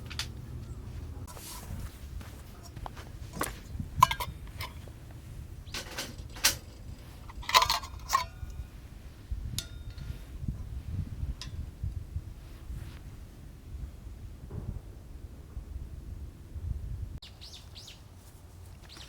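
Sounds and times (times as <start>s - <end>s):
low rumble: 10.2s - 17.2s.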